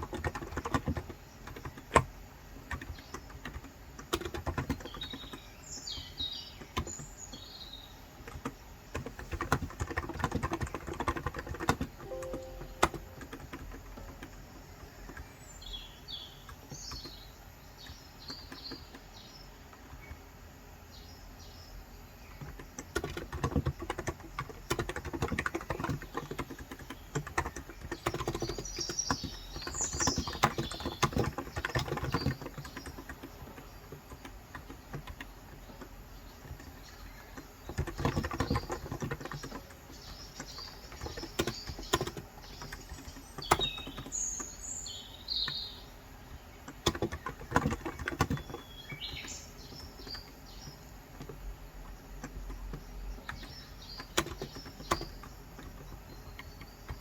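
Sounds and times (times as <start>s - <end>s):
keyboard typing: 0.0s - 5.4s, 8.2s - 15.3s, 22.4s - 44.1s, 46.6s - 57.0s
small birds chirping: 0.0s - 57.0s.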